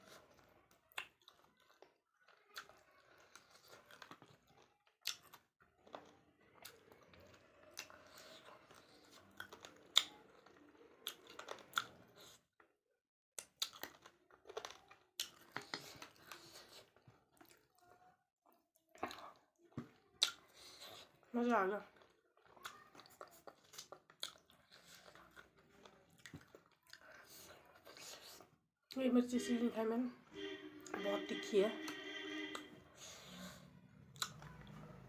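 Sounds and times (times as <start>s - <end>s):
person chewing food: 0.0s - 12.6s, 13.4s - 18.1s, 18.8s - 28.6s, 31.8s - 35.0s
wet mouth clicks and smacks: 34.2s - 34.5s.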